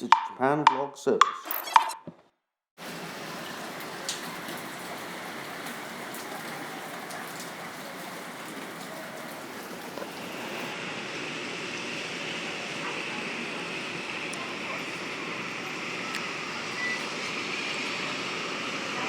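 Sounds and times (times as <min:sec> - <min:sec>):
raindrops tapping: 0:02.8 - 0:10.7
steady rain falling: 0:02.8 - 0:19.0.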